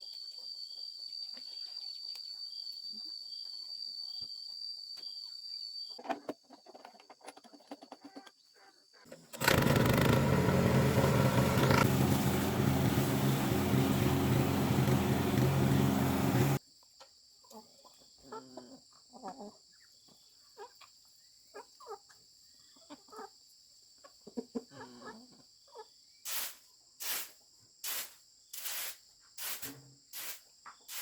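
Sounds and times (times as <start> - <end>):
water pump engine running: 9.3 - 16.6.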